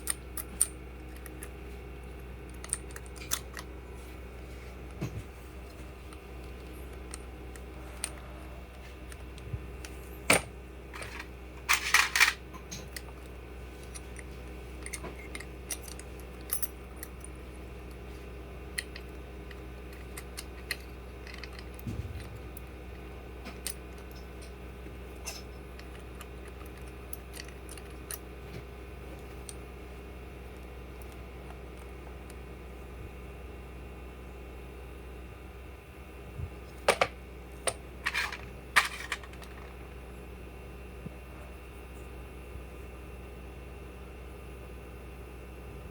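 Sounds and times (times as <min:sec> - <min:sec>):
steady low hum: 0:00.0 - 0:45.9
metal parts clinking: 0:10.3 - 0:17.3, 0:18.7 - 0:22.6, 0:25.2 - 0:28.2, 0:36.9 - 0:39.8.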